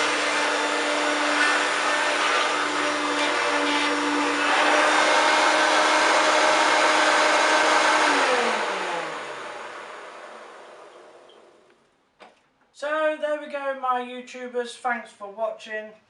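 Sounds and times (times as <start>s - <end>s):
vacuum cleaner running: 0.0s - 11.7s
motor winding down whine: 0.0s - 11.8s.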